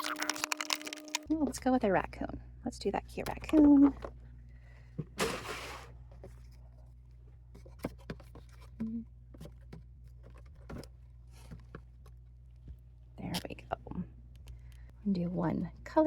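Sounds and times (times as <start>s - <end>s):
small items handled: 0.0s - 1.3s
steady low hum: 0.0s - 16.0s.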